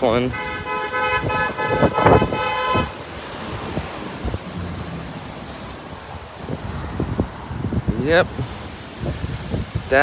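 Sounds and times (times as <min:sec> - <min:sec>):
wind buffeting microphone: 0:00.0 - 0:10.0
car horn: 0:00.1 - 0:03.3.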